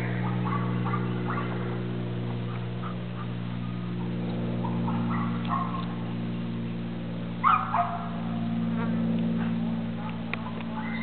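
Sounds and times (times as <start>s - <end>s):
steady low hum: 0.0s - 11.0s
dog barking: 0.1s - 1.6s, 4.0s - 5.9s, 7.4s - 8.1s, 8.8s - 11.0s.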